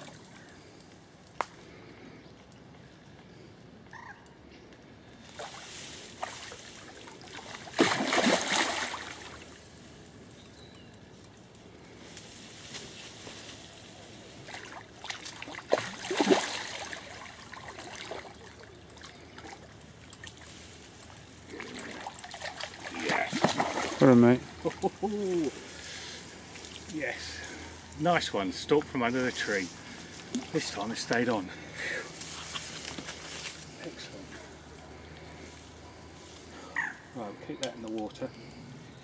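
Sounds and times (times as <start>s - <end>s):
fish splashing in water: 5.4s - 9.6s, 14.4s - 20.5s, 21.6s - 24.1s
water sloshing: 5.4s - 9.6s, 14.4s - 20.6s, 21.5s - 24.8s.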